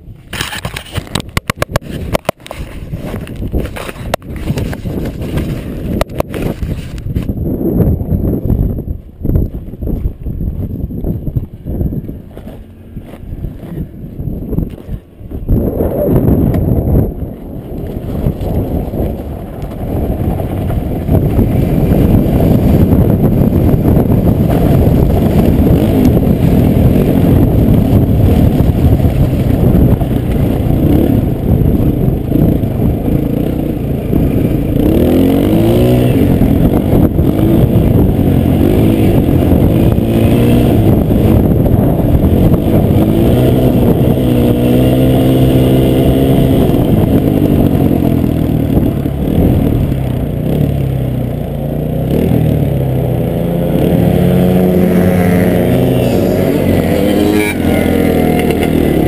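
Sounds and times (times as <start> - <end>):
dirt bike engine revving: 19.8 - 59.0.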